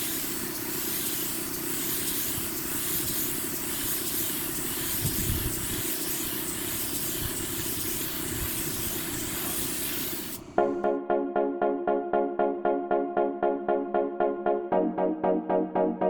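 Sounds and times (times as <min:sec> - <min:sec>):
steady hissing noise: 0:00.0 - 0:10.9.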